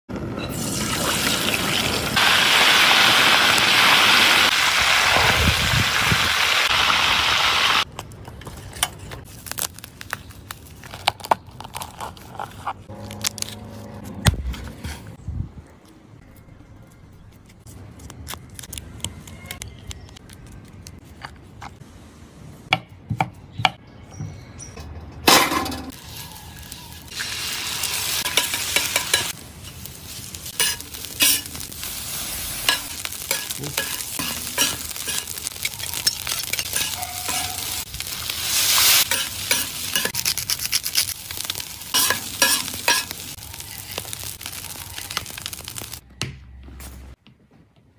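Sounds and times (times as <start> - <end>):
food sizzling on griddle: 0.5 - 7.8, 26.0 - 46.0
metal spatula scraping and tapping: 36.0 - 37.6, 42.0 - 43.1.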